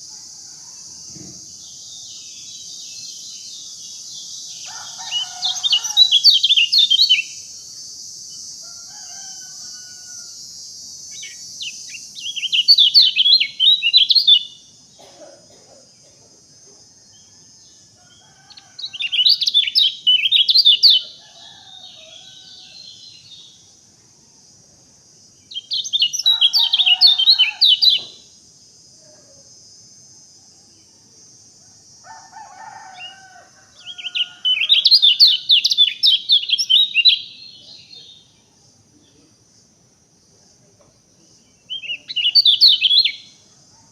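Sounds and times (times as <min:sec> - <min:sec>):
steady high hiss: 0:00.0 - 0:17.0
songbird chirping: 0:00.0 - 0:43.9.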